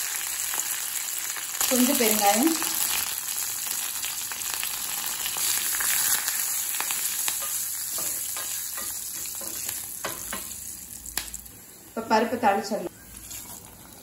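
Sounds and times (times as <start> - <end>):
spices sizzling in hot oil: 0.0 - 14.0
spatula stirring in pan: 5.3 - 10.7.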